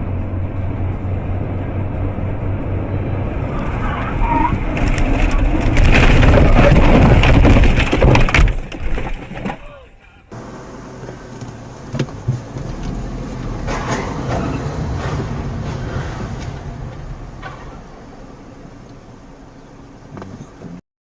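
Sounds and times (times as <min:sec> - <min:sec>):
vehicle road and engine noise: 0:00.0 - 0:20.8.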